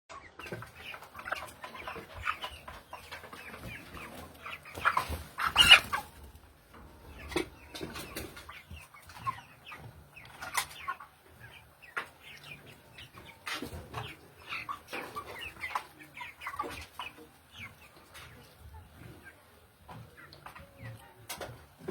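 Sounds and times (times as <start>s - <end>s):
chickens clucking: 0.1s - 21.9s.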